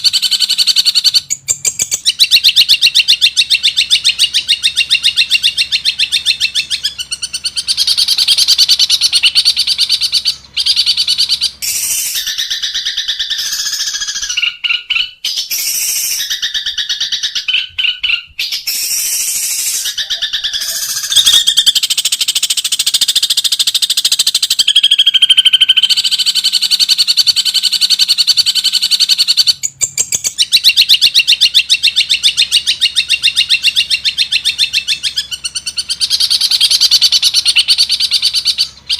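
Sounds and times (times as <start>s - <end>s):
bird singing trills and chirps: 0.0s - 38.9s.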